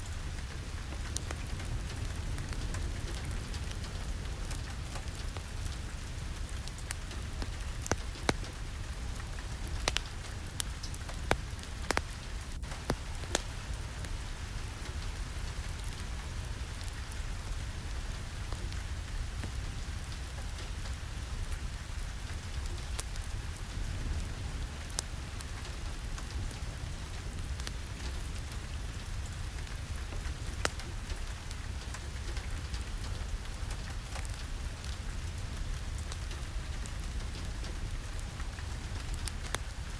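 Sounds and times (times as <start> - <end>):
steady rain: 0.0 - 39.9
sharp clicks and pops: 9.8 - 13.5.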